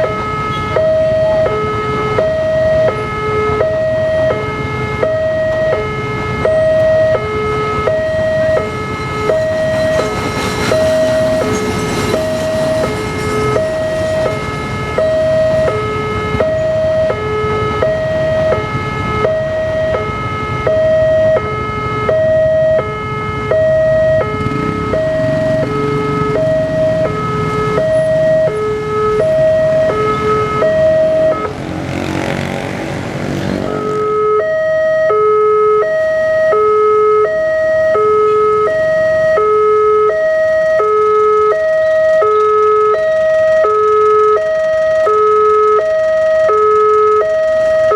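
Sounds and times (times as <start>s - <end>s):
two-tone crossing alarm: 0.0s - 32.5s, 33.7s - 47.9s
train rumbling: 8.0s - 16.7s.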